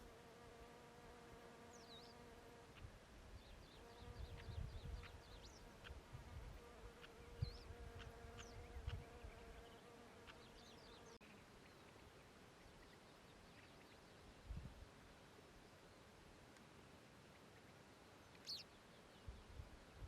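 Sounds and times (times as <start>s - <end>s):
insect buzzing: 0.0s - 2.9s, 3.6s - 11.3s
faint high bird chirps: 17.3s - 19.6s.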